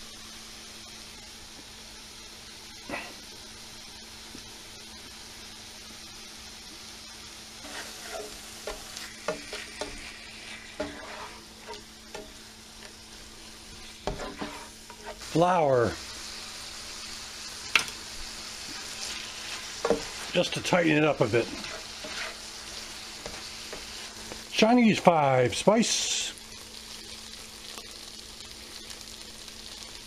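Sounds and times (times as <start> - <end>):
food sizzling in a skillet: 0.0 - 30.0
spatula scraping a pan: 7.6 - 13.0, 13.7 - 15.3, 18.6 - 24.4
person speaking: 20.3 - 21.8, 24.5 - 26.4.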